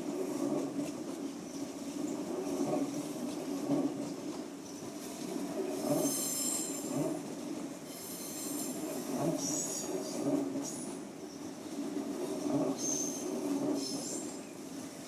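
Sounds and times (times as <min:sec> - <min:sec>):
train rolling on tracks: 0:00.0 - 0:15.0
train wheels squealing: 0:05.7 - 0:07.2, 0:07.8 - 0:11.7, 0:12.7 - 0:14.6.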